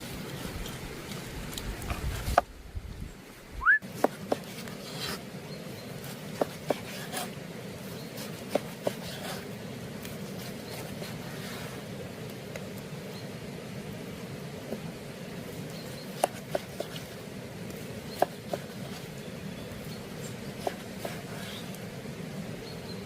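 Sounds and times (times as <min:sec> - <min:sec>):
low background hiss: 0:07.3 - 0:23.0.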